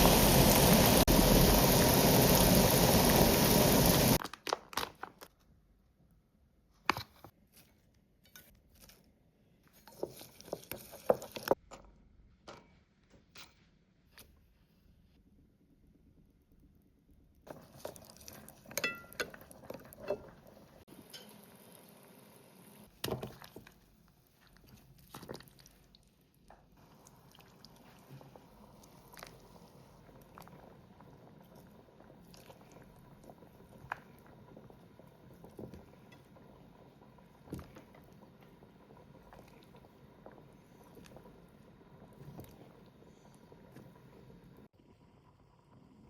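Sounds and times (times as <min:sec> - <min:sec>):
dishes and utensils clinking: 0:18.7 - 0:20.4.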